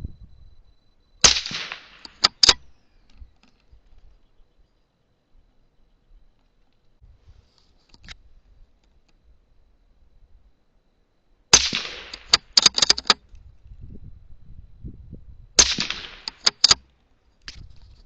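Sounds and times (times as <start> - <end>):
rifle shots: 1.2 - 2.6, 11.5 - 13.2, 15.6 - 16.8
rifle bolt clicks: 1.4 - 3.6, 11.7 - 13.2, 15.6 - 16.8.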